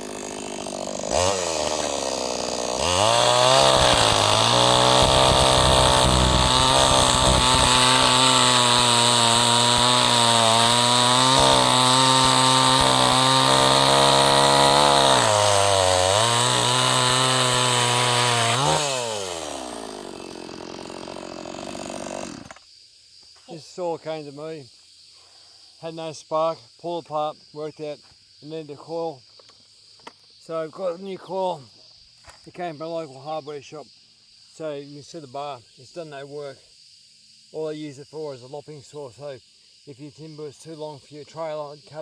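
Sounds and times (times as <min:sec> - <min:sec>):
chainsaw idling and revving: 0:00.0 - 0:22.6.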